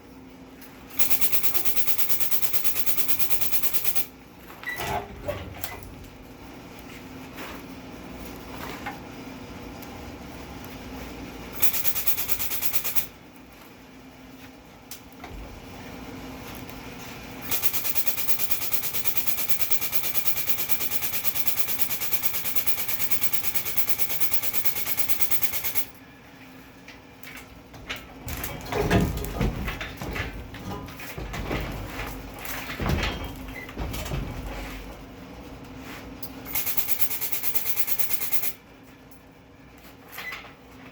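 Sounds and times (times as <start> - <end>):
metal clanks and knocks: 27.7 - 35.1.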